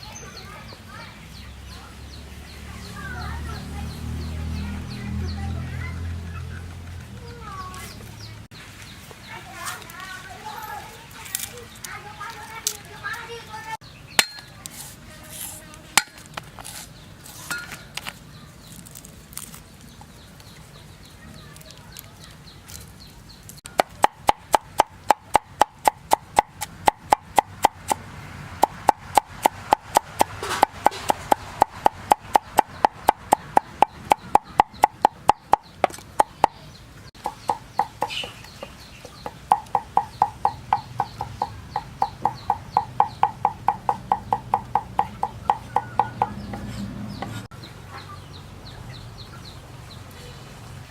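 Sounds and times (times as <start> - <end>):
knife chopping on wooden board: 23.8 - 28.0, 28.6 - 36.6, 39.2 - 47.5.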